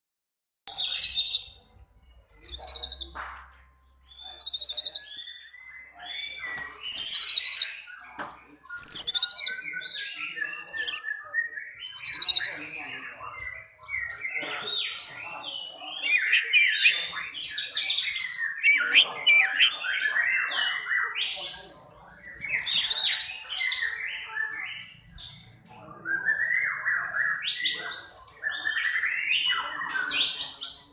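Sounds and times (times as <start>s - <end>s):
bird singing whistled phrases: 0.7s - 1.6s, 2.3s - 3.2s, 4.1s - 8.0s, 8.7s - 12.9s, 15.6s - 21.2s.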